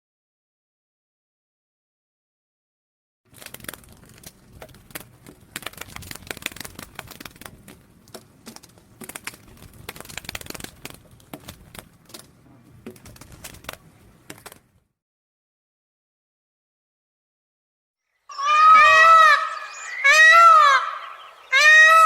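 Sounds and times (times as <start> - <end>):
caterpillars chewing leaves: 3.3 - 12.4.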